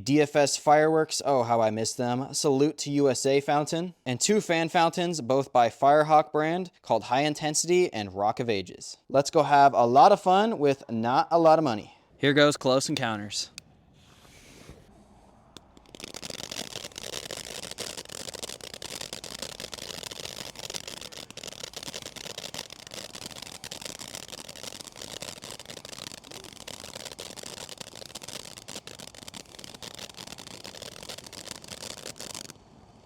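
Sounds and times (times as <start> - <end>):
firework fountain hissing and crackling: 14.2 - 33.0.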